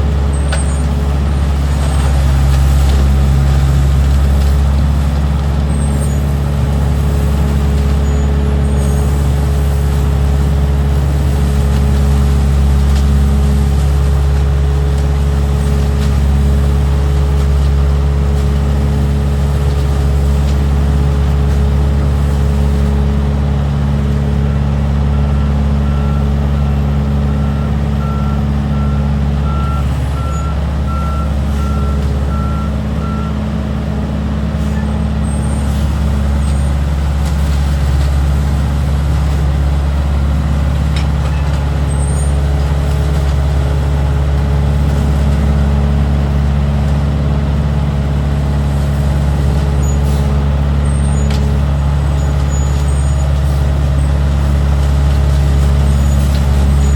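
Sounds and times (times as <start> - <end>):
truck engine humming: 0.0 - 56.9
reversing beeper beeps: 25.0 - 33.4.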